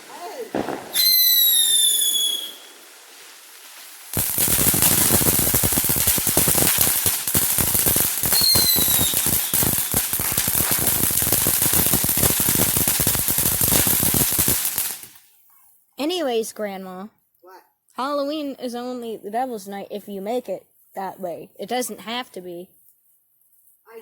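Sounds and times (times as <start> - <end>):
firecrackers popping: 0.0 - 15.2
falling whistle: 0.6 - 2.8, 8.3 - 9.7.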